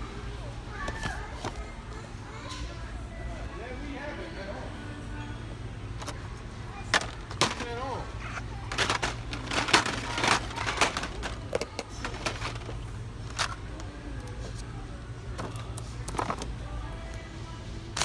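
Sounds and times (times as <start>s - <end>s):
faint background voices: 0.0s - 18.0s
clicks and rustles of handling: 0.8s - 1.7s, 6.0s - 17.2s.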